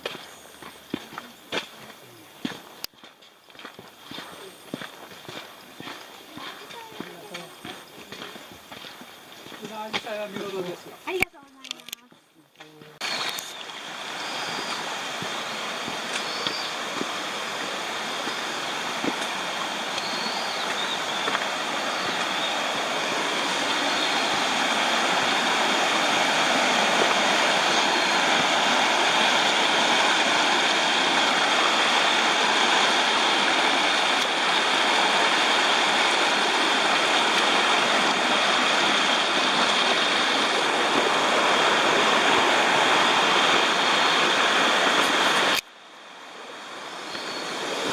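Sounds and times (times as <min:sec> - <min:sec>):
water rushing: 0:03.8 - 0:11.9, 0:12.8 - 0:47.9
faint high chirps: 0:13.0 - 0:16.8, 0:19.9 - 0:24.5.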